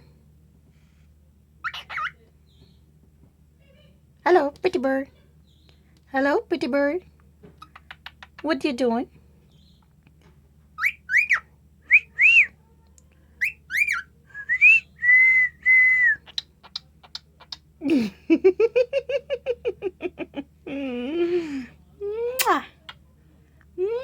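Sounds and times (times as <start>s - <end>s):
cockatiel buzzy chattering: 1.6s - 2.2s, 7.6s - 8.5s
cockatiel whistling: 10.8s - 12.5s, 13.4s - 16.4s.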